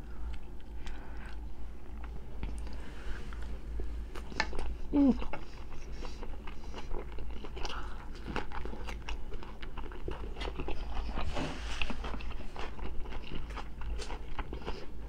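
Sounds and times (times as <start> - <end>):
crunchy chewing of cucumber: 4.1 - 15.0.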